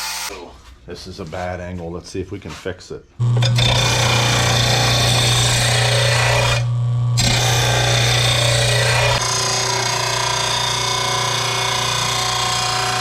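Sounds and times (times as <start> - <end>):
sharpener motor hum: 3.2 - 13.0
metal blade grinding on wheel: 3.3 - 13.0.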